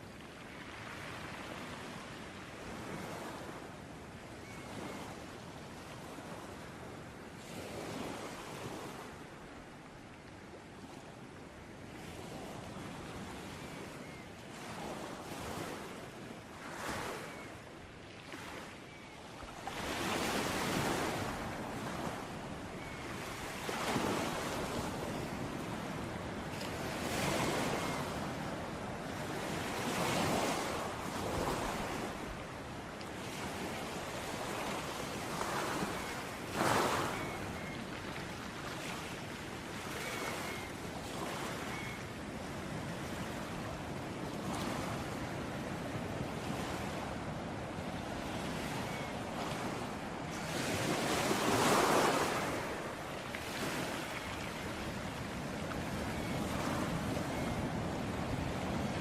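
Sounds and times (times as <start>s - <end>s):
ocean waves breaking: 43.0s - 59.0s.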